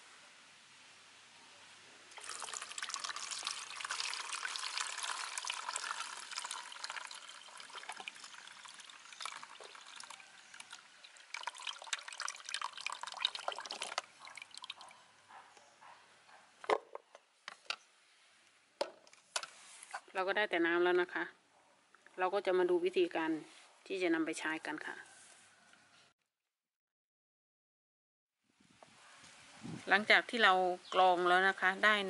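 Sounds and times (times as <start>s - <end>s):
liquid pouring through filter: 2.1s - 15.0s
liquid trickling: 2.1s - 15.0s.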